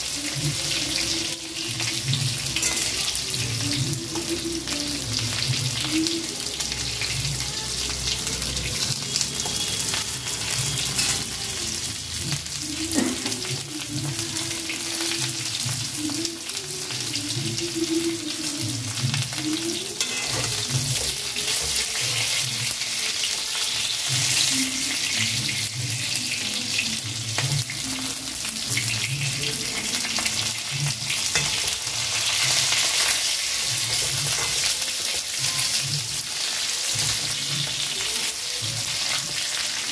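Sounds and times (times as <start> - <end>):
vegetables sizzling in hot oil: 0.0 - 39.9
spatula scraping a pan: 20.0 - 22.5.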